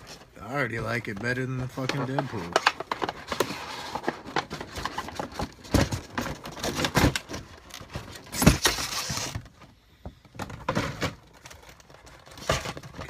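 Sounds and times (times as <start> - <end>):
clicks taps and rustles of plastic: 0.0 - 8.6.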